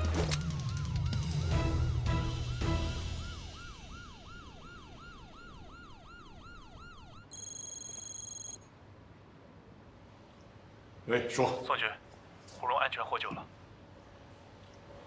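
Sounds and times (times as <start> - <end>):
police siren yelping: 0.0 - 8.6
high electronic beep: 7.3 - 8.6.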